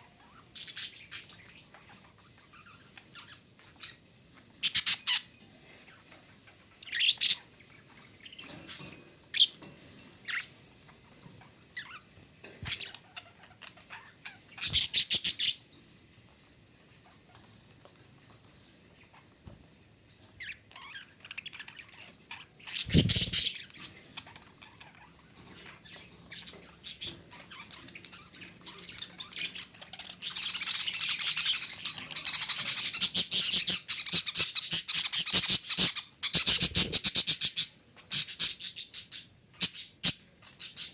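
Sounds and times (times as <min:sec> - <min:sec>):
budgerigar chirping and chattering: 0:04.6 - 0:05.3, 0:06.8 - 0:07.5, 0:12.7 - 0:15.6, 0:20.4 - 0:23.7, 0:25.9 - 0:40.9.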